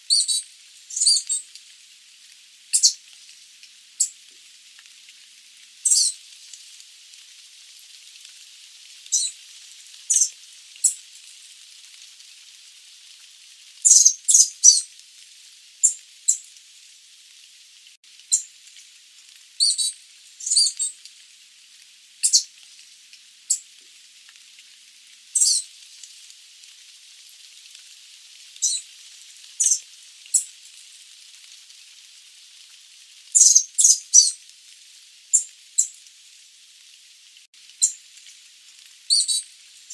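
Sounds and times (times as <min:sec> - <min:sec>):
steady hiss: 0:00.0 - 0:39.9.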